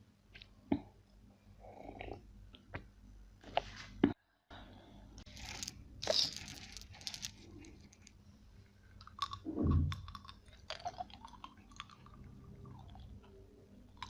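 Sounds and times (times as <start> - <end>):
crunching and chewing food: 5.3 - 8.2, 8.8 - 14.0
wet mouth clicks: 9.0 - 12.2.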